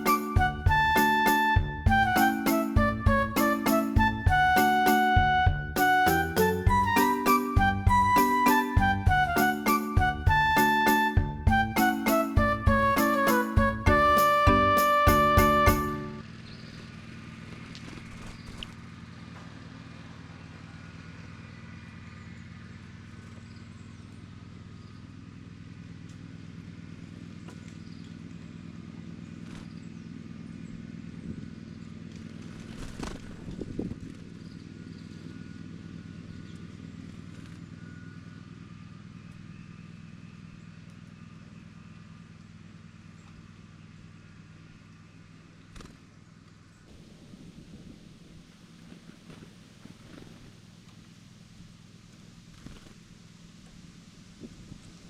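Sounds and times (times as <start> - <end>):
vehicle engine humming: 0.0 - 8.2.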